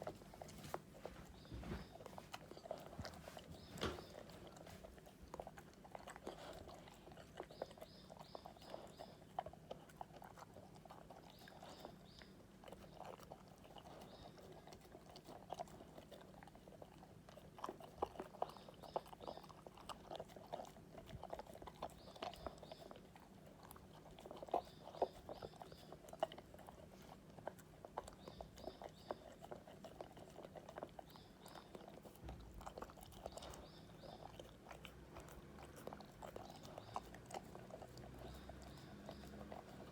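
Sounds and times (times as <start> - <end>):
dog crunching and chewing food: 0.0 - 39.9.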